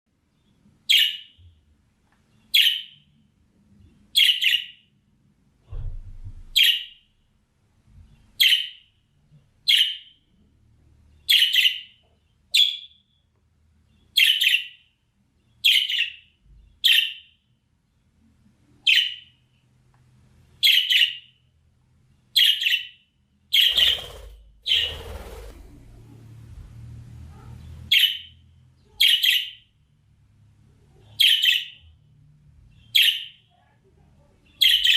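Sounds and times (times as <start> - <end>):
budgerigar chirping: 4.2 - 4.8.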